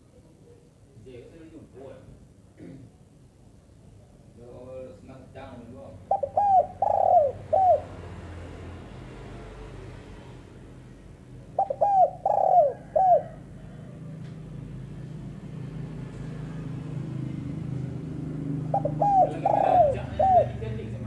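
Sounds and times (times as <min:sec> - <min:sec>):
dove cooing: 0:06.0 - 0:08.1, 0:11.4 - 0:14.6, 0:17.5 - 0:21.0.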